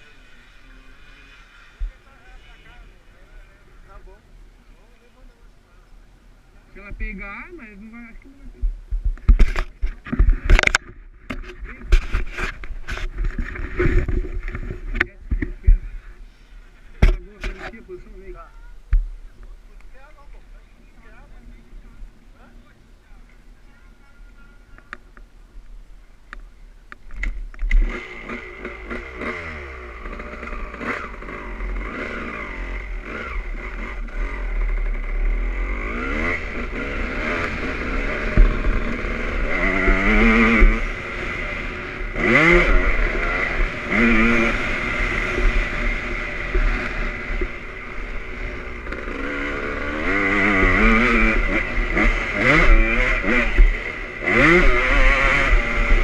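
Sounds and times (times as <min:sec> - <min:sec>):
motocross engine revving: 0:00.0 - 0:04.2, 0:27.6 - 0:56.0.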